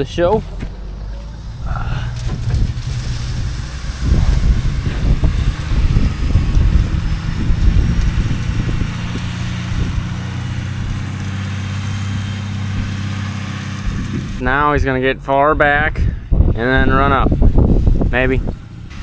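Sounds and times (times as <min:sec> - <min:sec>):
vehicle engine running: 0:00.0 - 0:19.0
wind buffeting microphone: 0:00.0 - 0:19.0.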